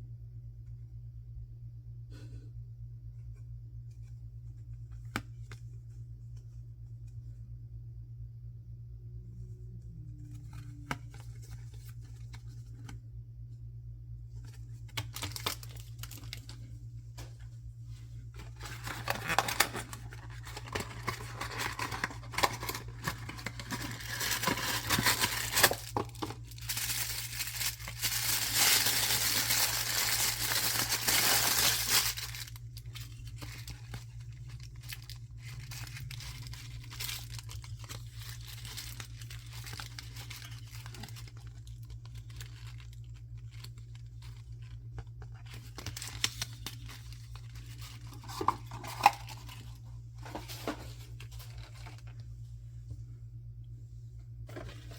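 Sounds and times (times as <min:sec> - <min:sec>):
steady low hum: 0:00.0 - 0:54.9
packaging torn and crinkled: 0:14.4 - 0:16.7, 0:18.4 - 0:52.2.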